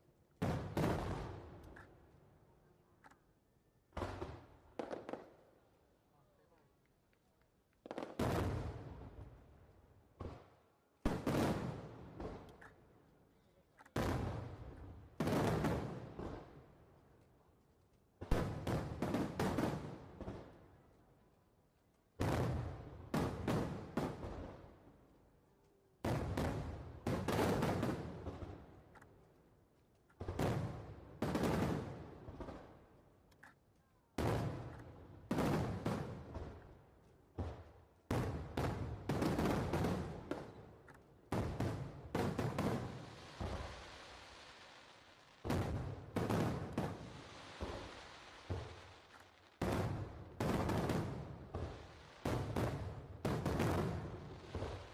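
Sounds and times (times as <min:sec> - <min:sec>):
faint firework pops: 0:03.9 - 0:05.6, 0:06.5 - 0:09.3, 0:10.1 - 0:12.9, 0:13.7 - 0:16.6, 0:45.4 - 0:54.9.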